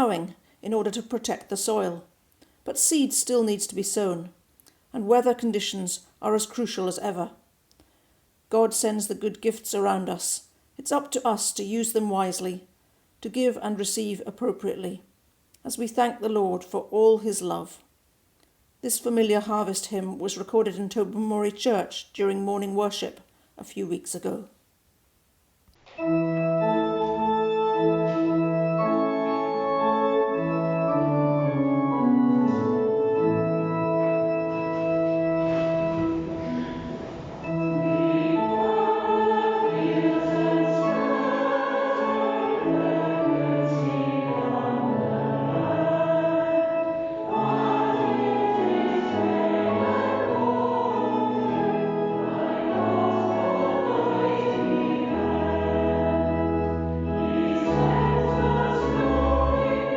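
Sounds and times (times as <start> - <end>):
organ accompaniment: 25.8 - 59.9
congregation singing a hymn: 26.6 - 59.9.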